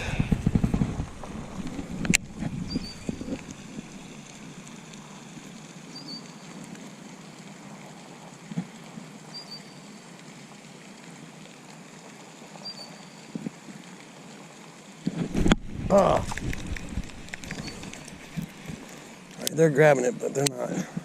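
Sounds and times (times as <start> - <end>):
water or light rain hissing: 0.0 - 21.0
faint high chirp: 2.6 - 3.1, 9.3 - 9.8, 12.6 - 13.3.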